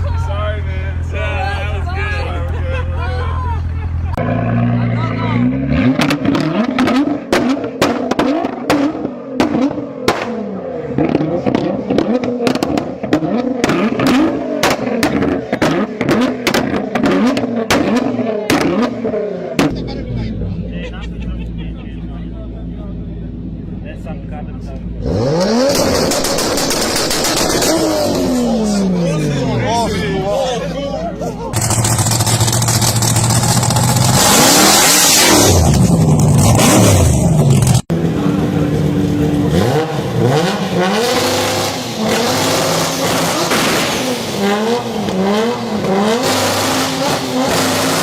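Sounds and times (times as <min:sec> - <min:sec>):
exhaust bangs: 0:03.9 - 0:48.0
car engine revving: 0:04.0 - 0:20.7, 0:21.3 - 0:48.0.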